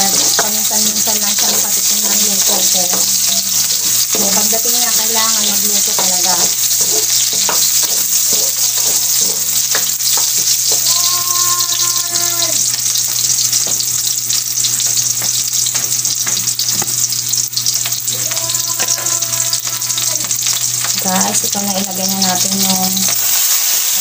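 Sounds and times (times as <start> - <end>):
onions sizzling in hot oil: 0.0 - 24.0
spatula scraping a wok: 1.1 - 10.9.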